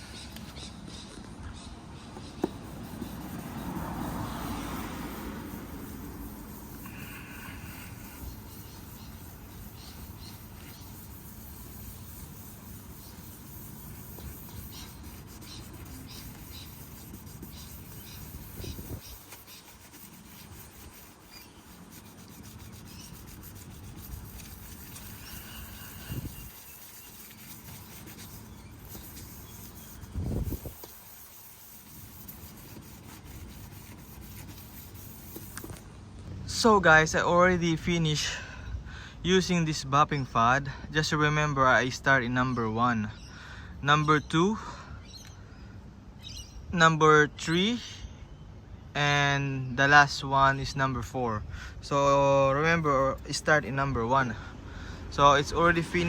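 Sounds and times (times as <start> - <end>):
scratchy sanding of plastic: 2.2 - 35.8.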